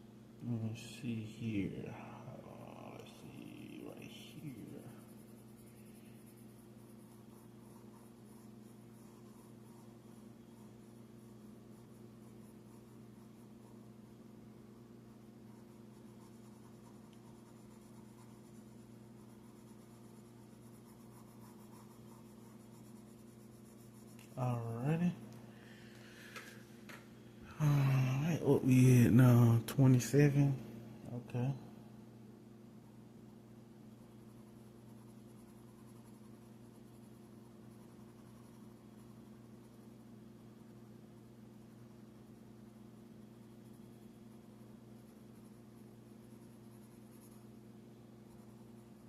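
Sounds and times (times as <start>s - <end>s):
low electrical hum: 0.0s - 49.0s
drawing tool scratching on paper: 3.8s - 13.9s, 15.5s - 24.6s.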